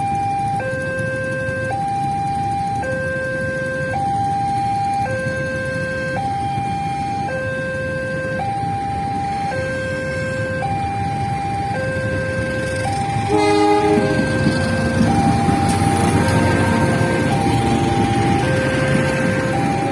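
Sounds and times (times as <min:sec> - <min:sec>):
level-crossing two-tone alarm: 0:00.0 - 0:19.9
road traffic rumble: 0:00.0 - 0:19.9
horn sounding briefly: 0:13.3 - 0:14.5.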